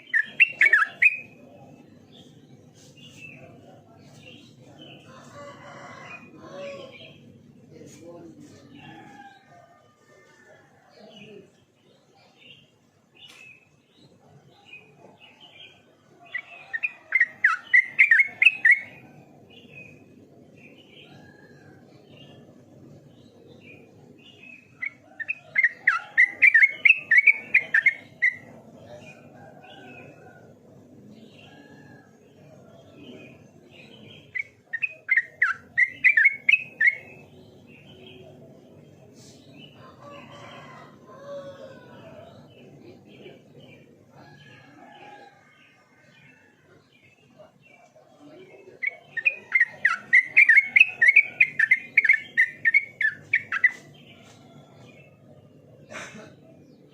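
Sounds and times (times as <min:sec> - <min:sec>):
bulbul singing: 0:00.0 - 0:02.4, 0:14.7 - 0:21.3, 0:22.0 - 0:30.2, 0:32.8 - 0:38.4, 0:48.3 - 0:55.8.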